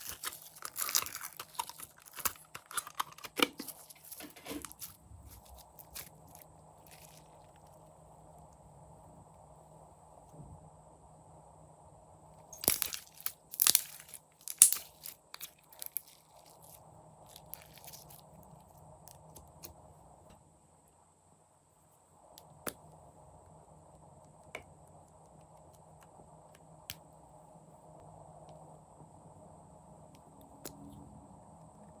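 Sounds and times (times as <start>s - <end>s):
slime crackling and popping: 0.0s - 7.7s, 12.5s - 18.2s.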